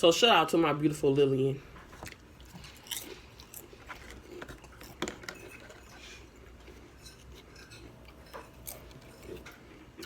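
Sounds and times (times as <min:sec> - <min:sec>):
person crunching potato chips: 0:02.1 - 0:05.0.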